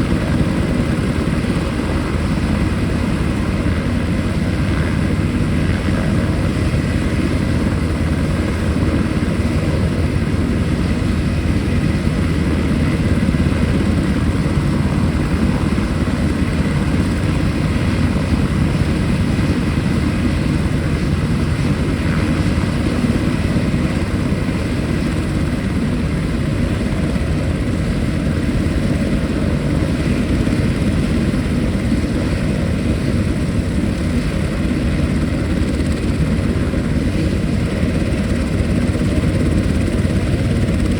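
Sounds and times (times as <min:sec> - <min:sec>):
helicopter rotor beat: 0:00.0 - 0:40.9
helicopter turbine whine: 0:00.0 - 0:40.9.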